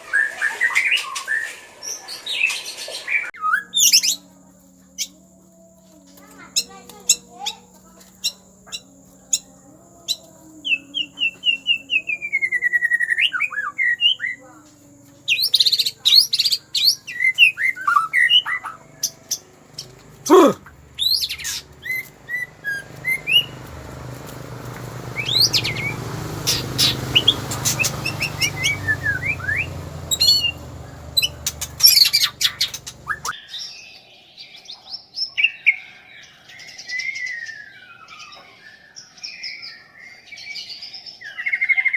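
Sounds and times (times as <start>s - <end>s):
bird singing whistled phrases: 3.4s - 4.3s, 15.3s - 19.9s, 21.0s - 23.6s, 25.2s - 33.4s.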